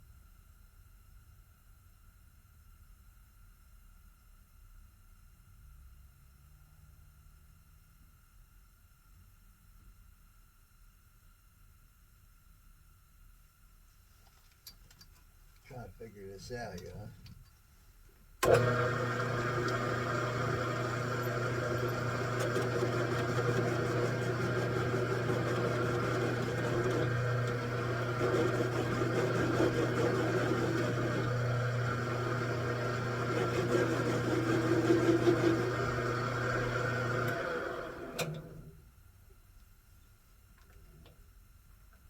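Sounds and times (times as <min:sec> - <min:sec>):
metal lathe running: 0:18.4 - 0:38.5
lathe winding down: 0:18.4 - 0:38.7.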